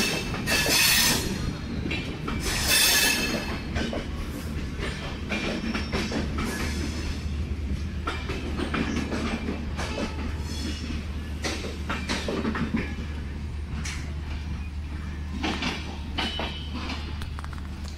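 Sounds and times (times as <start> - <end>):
high wheel squeals: 0.0 - 3.6
train wheels clattering: 0.0 - 14.6, 15.3 - 17.9
train rumble: 0.0 - 17.9.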